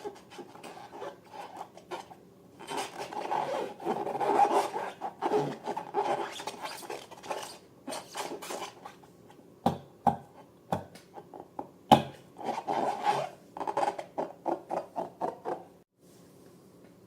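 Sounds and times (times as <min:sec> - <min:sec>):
rubbing and scraping strokes: 0:00.0 - 0:09.1, 0:12.4 - 0:15.6.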